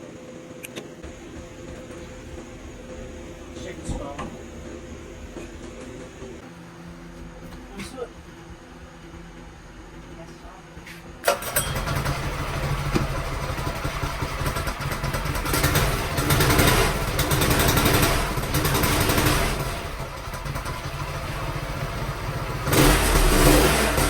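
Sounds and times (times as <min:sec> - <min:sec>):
go-kart engine revving: 0:11.2 - 0:24.0.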